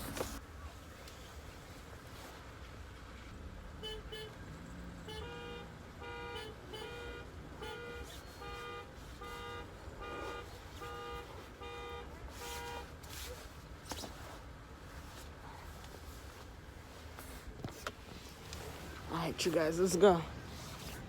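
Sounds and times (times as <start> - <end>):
car alarm horn honking: 5.1 - 12.9.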